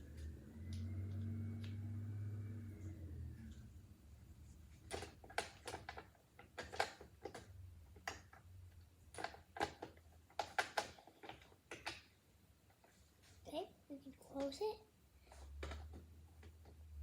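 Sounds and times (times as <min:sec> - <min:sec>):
plastic parts clicking together: 0:04.9 - 0:08.5, 0:09.1 - 0:12.1.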